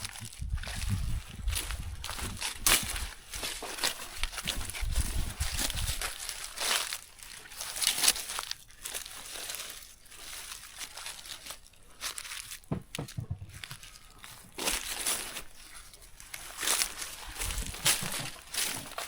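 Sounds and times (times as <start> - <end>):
low thuds: 0.0 - 3.2, 12.7 - 13.9
material crinkling and rustling: 0.0 - 19.0.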